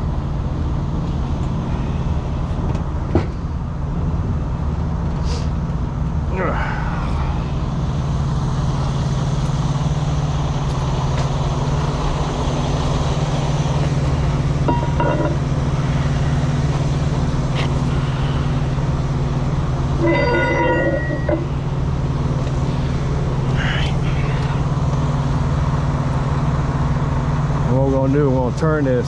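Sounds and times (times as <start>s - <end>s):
engine idling: 0.0s - 29.0s
short tone: 20.0s - 21.5s.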